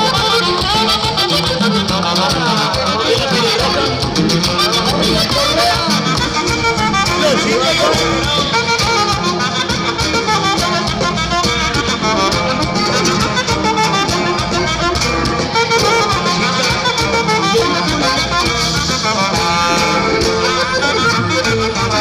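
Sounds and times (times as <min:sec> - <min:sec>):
instrumental dance band music: 0:00.0 - 0:22.0.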